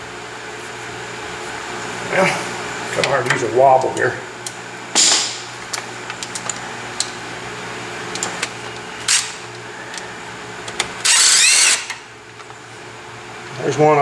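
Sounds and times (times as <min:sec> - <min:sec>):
power tool spinning: 0:08.1 - 0:10.1, 0:10.7 - 0:12.1.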